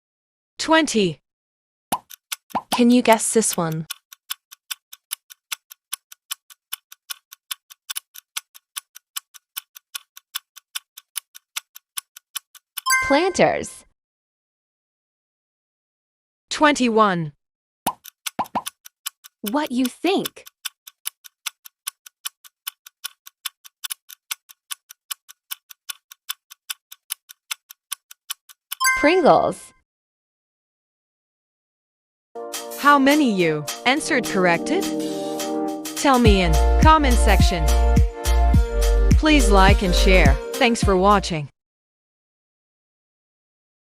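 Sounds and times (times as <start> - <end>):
clock-like ticking: 2.0 - 13.0, 17.9 - 28.9.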